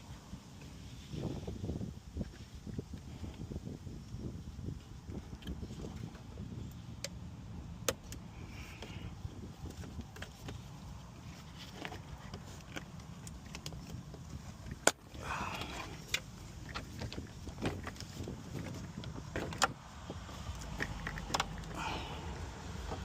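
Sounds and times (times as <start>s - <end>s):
plastic trim creaking: 20.4s - 23.0s.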